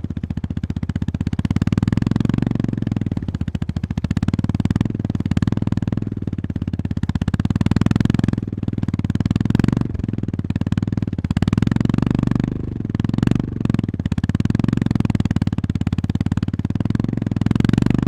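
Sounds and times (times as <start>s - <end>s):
motorcycle engine thumping: 0.0s - 12.2s.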